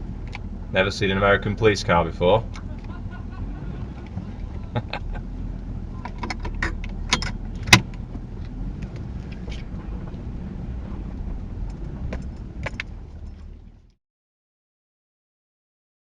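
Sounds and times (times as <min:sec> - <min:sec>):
car engine rumbling: 0:00.0 - 0:14.0
sharp clicks and rattles: 0:04.0 - 0:10.3, 0:10.9 - 0:13.6.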